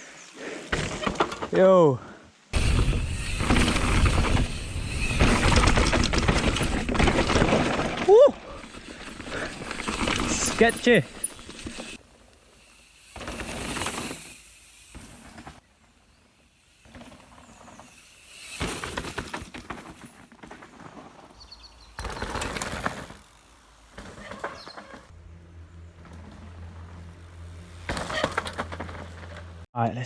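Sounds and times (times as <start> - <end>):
tyre roar and wind rush: 2.5 - 7.8
bike clicks and rattles: 2.6 - 29.6.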